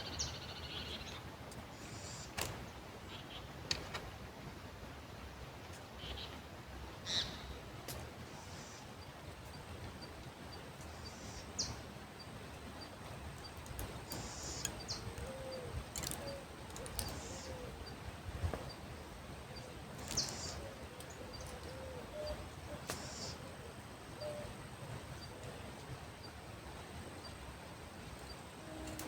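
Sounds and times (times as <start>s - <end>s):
birds calling: 6.0s - 29.0s.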